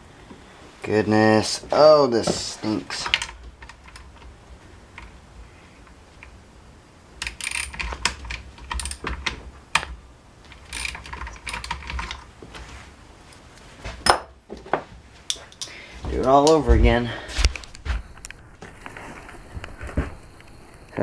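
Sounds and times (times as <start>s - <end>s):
plastic parts clicking and rattling: 2.9s - 4.3s, 7.2s - 12.3s.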